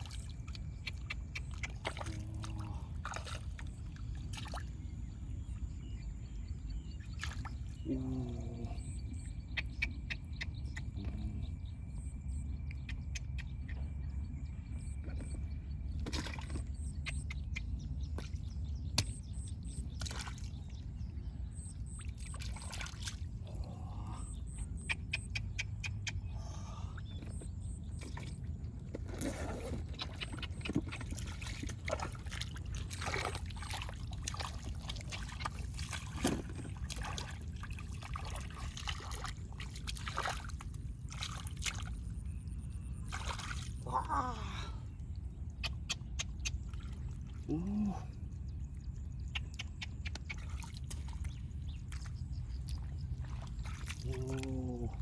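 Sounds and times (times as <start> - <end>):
short splashes and knocks: 0.0 - 4.8, 7.1 - 7.8, 15.1 - 17.2, 18.1 - 20.8, 22.0 - 23.3, 27.9 - 42.1, 43.0 - 44.1, 49.3 - 54.5
water splashing and trickling: 0.0 - 11.5, 15.1 - 55.0
steady low rumble: 0.0 - 55.0.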